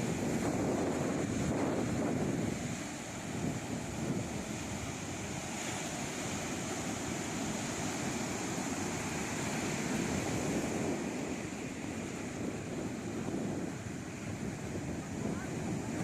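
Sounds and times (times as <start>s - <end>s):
ocean waves washing in: 0.0s - 16.0s.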